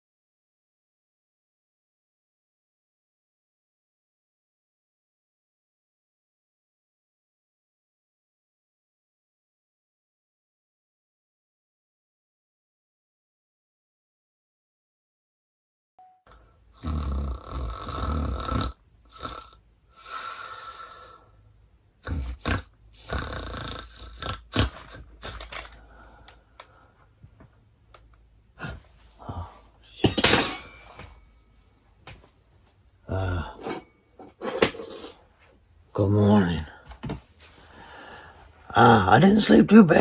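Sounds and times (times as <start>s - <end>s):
man grunting and burping: 16.8s - 19.6s, 22.0s - 25.5s, 33.0s - 33.8s.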